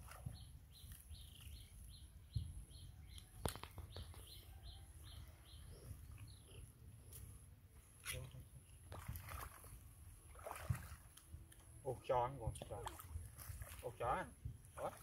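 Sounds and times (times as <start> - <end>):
bird chirping: 0.2 - 6.8.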